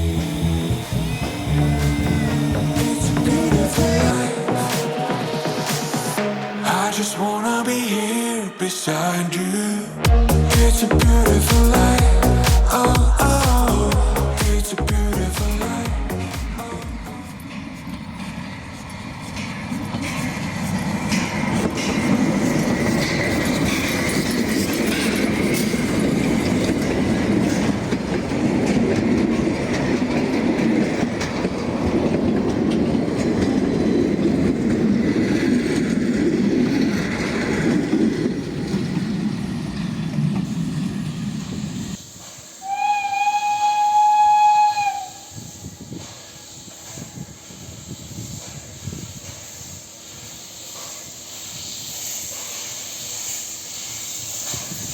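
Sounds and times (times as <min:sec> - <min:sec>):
locomotive whistle: 0:00.0 - 0:07.0, 0:42.5 - 0:47.6
train wheels rumbling on track: 0:00.0 - 0:07.4, 0:10.2 - 0:54.9.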